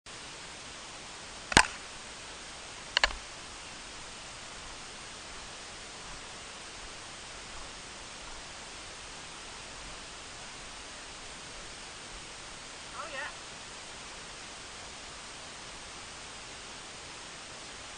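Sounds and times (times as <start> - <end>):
steady hiss: 0.1 - 17.9
sharp knock: 1.5 - 1.8.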